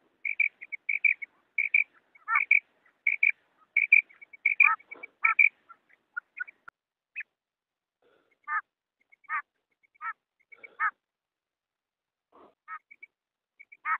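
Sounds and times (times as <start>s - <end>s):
quail calling: 0.0s - 6.7s, 8.4s - 11.0s, 12.7s - 13.9s.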